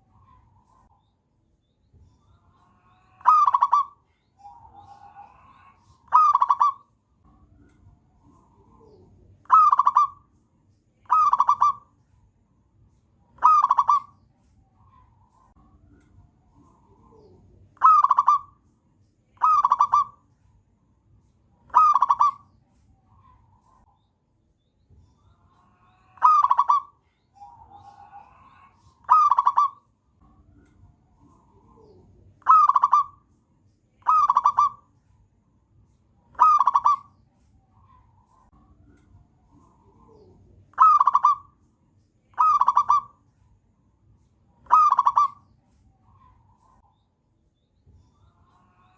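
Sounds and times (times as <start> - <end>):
dove cooing: 3.2 - 6.8, 8.3 - 10.3, 11.1 - 11.9, 13.4 - 14.1, 16.6 - 18.6, 19.4 - 20.2, 21.7 - 22.4, 26.2 - 29.8, 31.2 - 33.2, 34.0 - 34.8, 36.4 - 37.1, 39.5 - 41.6, 42.4 - 43.2, 44.6 - 45.4.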